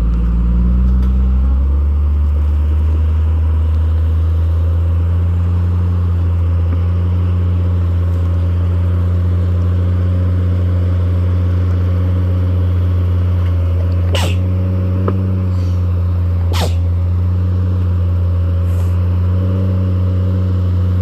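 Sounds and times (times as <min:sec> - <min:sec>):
car engine running: 0:00.0 - 0:21.0
high squeak: 0:14.1 - 0:14.5, 0:16.5 - 0:16.9.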